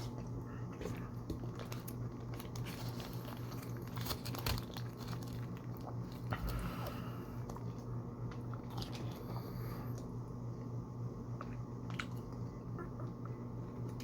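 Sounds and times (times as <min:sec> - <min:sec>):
steady low hum: 0:00.0 - 0:14.0
chewing: 0:00.2 - 0:10.1
food wrapping paper crinkling: 0:01.4 - 0:06.6.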